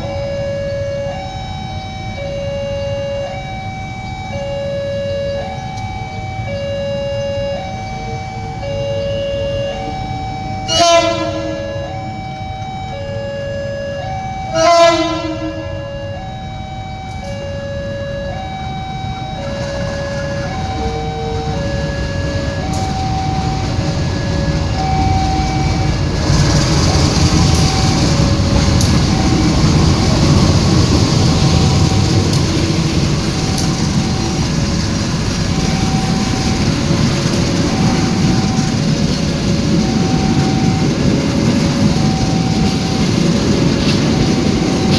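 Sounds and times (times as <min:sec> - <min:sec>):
train rumble passing: 0:00.0 - 0:44.9
two-tone crossing alarm beeping: 0:00.0 - 0:44.9
locomotive horn blasts: 0:10.6 - 0:12.1, 0:13.3 - 0:16.2.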